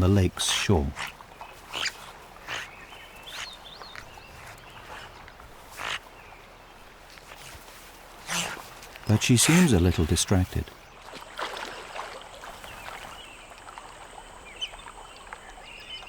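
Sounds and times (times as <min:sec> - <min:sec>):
otter squeaks and grunts: 0:00.3 - 0:06.1, 0:08.3 - 0:10.0.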